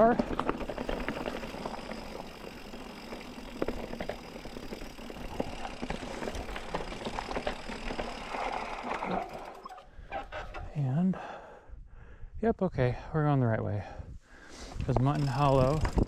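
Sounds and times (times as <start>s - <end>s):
bike tyres rolling on dirt: 0.0s - 10.6s, 14.6s - 16.0s
bike clicks and rattles: 0.0s - 10.8s, 14.8s - 16.0s.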